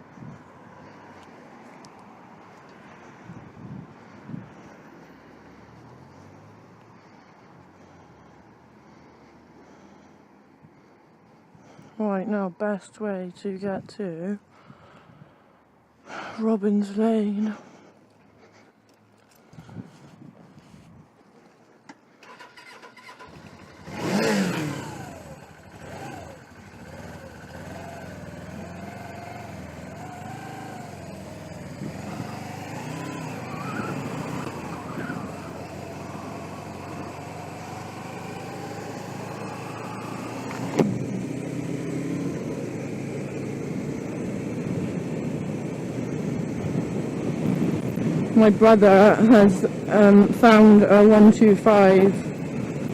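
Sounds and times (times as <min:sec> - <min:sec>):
wind noise: 0:03.1 - 0:04.8, 0:19.4 - 0:21.2, 0:44.6 - 0:50.4
motorcycle engine starting and revving: 0:22.1 - 0:52.9.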